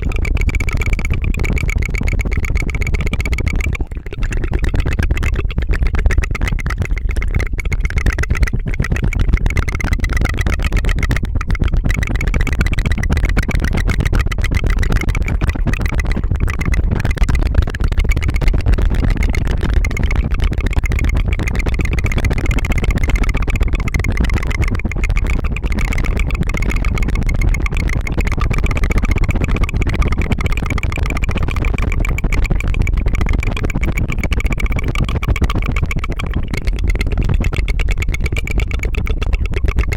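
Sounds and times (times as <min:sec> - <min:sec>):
rolled tongue trill: 0:00.0 - 0:39.9.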